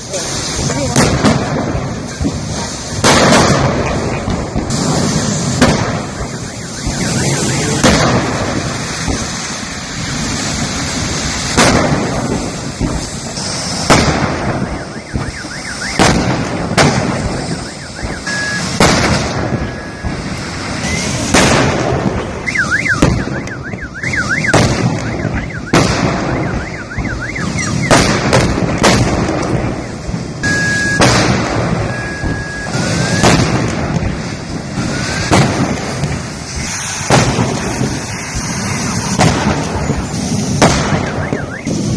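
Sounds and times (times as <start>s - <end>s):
large fire roaring: 0.0s - 41.9s
loud explosions: 0.0s - 41.9s
car alarms: 6.0s - 7.9s, 14.5s - 16.2s, 17.1s - 18.8s, 19.4s - 21.2s, 22.4s - 28.0s, 29.7s - 33.4s, 34.8s - 35.3s, 41.0s - 41.9s.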